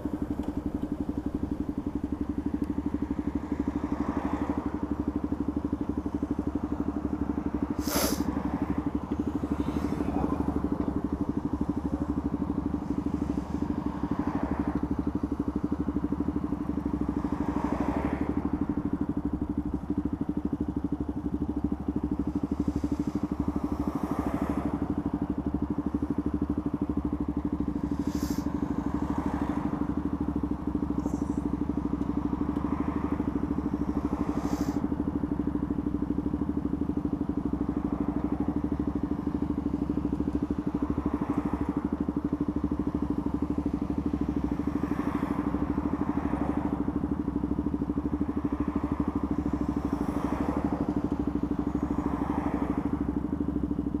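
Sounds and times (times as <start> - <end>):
motorcycle engine idling: 0.0 - 54.0
traffic passing: 0.0 - 54.0.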